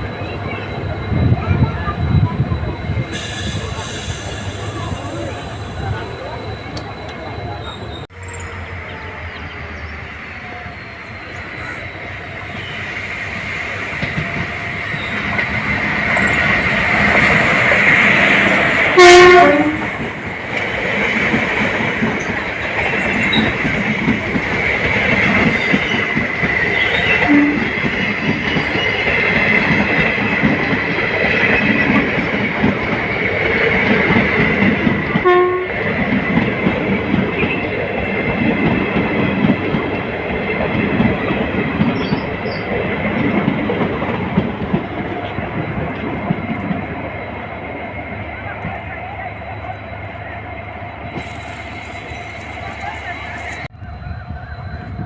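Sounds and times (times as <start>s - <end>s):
train wheels on rails: 0.0s - 55.0s
train horn: 18.9s - 20.1s, 26.9s - 27.9s, 35.1s - 35.9s.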